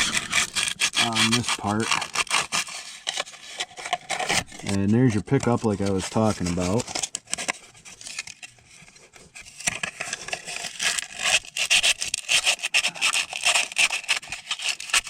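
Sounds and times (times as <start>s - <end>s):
sandpaper rubbing on metal: 0.0s - 3.6s, 10.4s - 15.0s.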